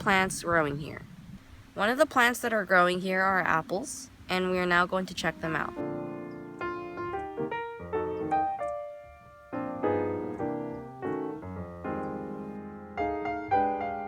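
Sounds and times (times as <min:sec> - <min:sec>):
piano music: 0:05.0 - 0:14.0.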